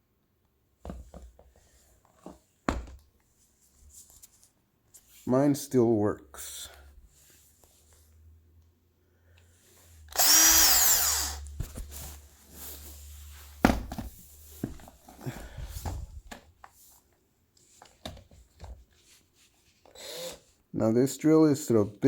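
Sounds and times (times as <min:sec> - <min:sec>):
power drill motor running: 0:10.1 - 0:11.6, 0:19.9 - 0:20.4.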